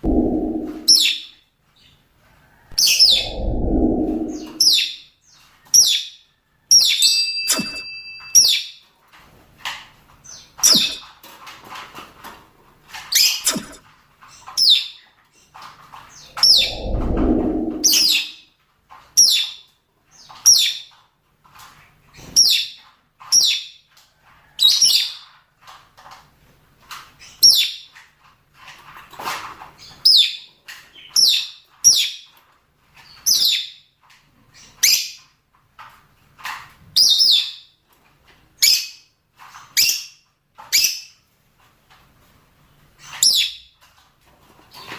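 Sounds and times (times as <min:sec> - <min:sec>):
low rumble: 0:00.0 - 0:01.1, 0:02.8 - 0:04.8, 0:16.4 - 0:18.3.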